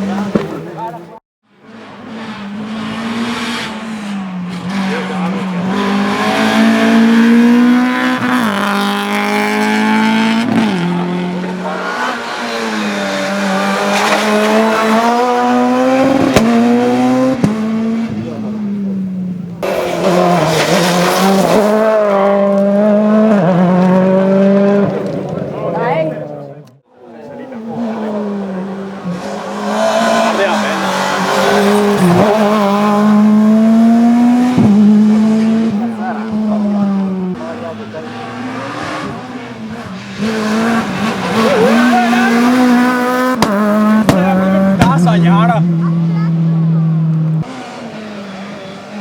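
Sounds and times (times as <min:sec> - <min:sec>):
rally car engine at high revs: 0:01.6 - 0:26.7, 0:27.3 - 0:49.0.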